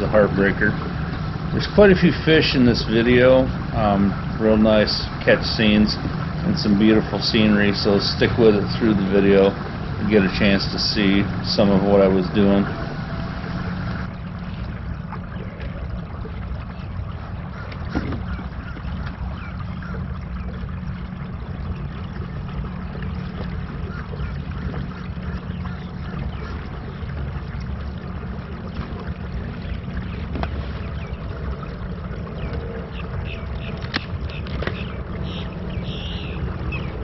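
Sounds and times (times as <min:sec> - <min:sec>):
low motor hum: 0:00.0 - 0:37.0
water wash: 0:00.0 - 0:37.0.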